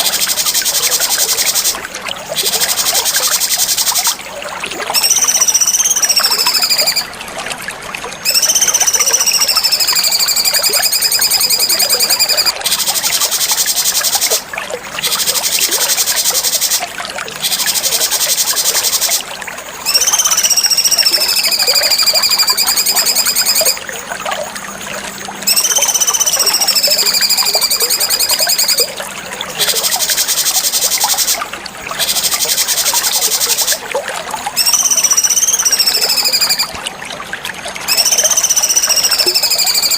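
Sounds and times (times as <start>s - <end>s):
bird whistling phrases: 5.0s - 7.1s, 8.2s - 14.4s, 19.8s - 23.8s, 25.4s - 28.9s, 34.6s - 36.7s, 37.9s - 39.9s.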